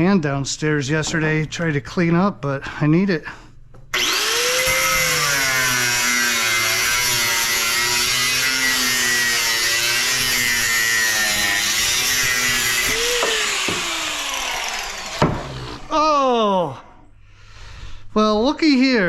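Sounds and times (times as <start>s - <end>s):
power tool cutting metal: 3.9s - 15.9s.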